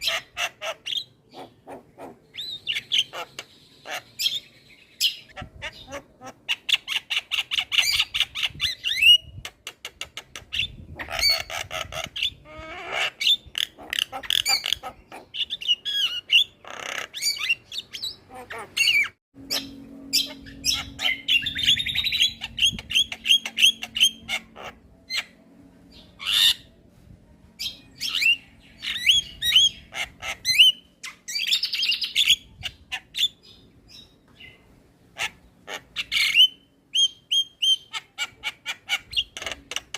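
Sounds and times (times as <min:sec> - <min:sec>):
myna bird singing: 0:00.0 - 0:26.8, 0:27.4 - 0:39.9
faint low hum: 0:19.4 - 0:31.8.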